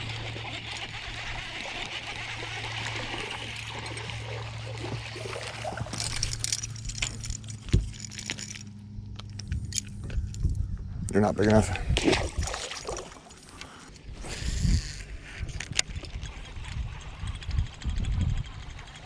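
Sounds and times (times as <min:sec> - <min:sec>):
water splashing and trickling: 0:00.0 - 0:08.7, 0:12.0 - 0:13.8
steady low hum: 0:00.0 - 0:19.0
rattling clicks: 0:05.8 - 0:10.2.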